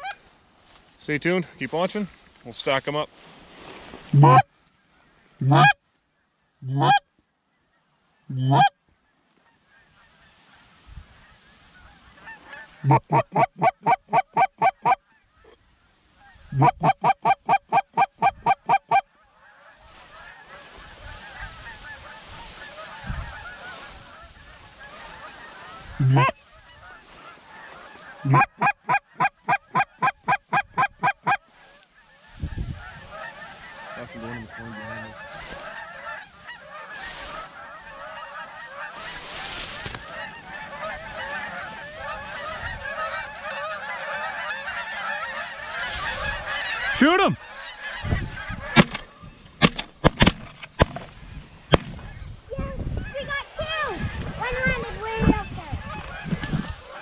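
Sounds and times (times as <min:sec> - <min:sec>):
geese honking: 0:00.0 - 0:03.0, 0:03.9 - 0:57.0
wind buffeting microphone: 0:20.8 - 0:24.9, 0:32.3 - 0:33.3, 0:40.0 - 0:43.5, 0:47.9 - 0:56.9.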